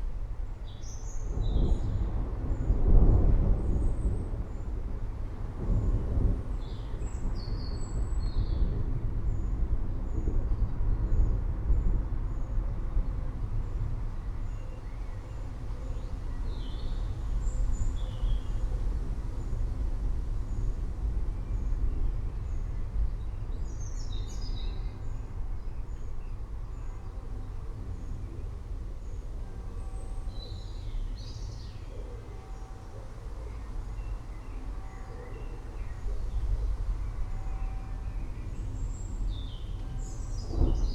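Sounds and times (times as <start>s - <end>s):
distant thunder rumble: 1.3s - 11.9s, 35.9s - 40.9s.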